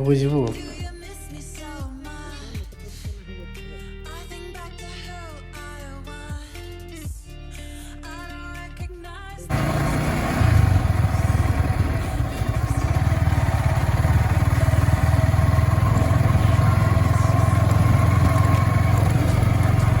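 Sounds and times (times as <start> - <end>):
vehicle engine droning: 9.5 - 20.0.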